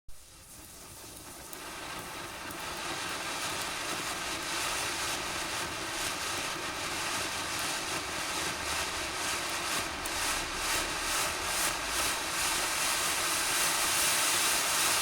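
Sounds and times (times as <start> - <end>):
fireworks crackling: 0.2 - 15.0.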